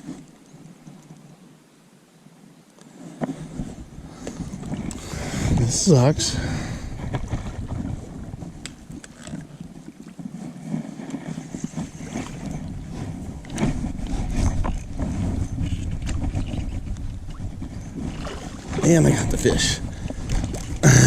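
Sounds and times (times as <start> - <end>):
wind and water rumble: 0.0 - 21.0
knocks and rustles from boat gear: 7.0 - 18.9, 20.0 - 20.8.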